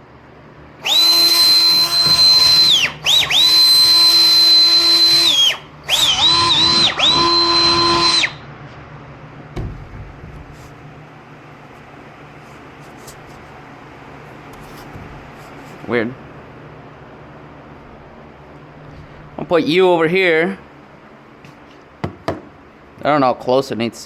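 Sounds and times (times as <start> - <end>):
electric power tool motor whine: 0.8 - 8.4
knock: 22.0 - 22.5.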